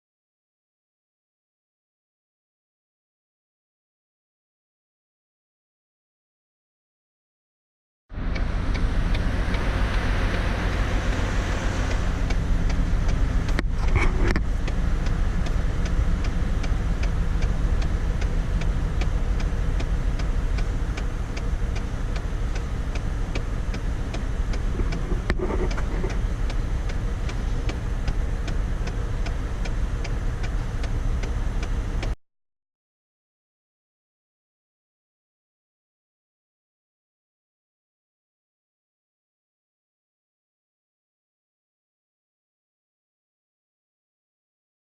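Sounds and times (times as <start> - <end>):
car engine idling with ticking: 8.1 - 32.2.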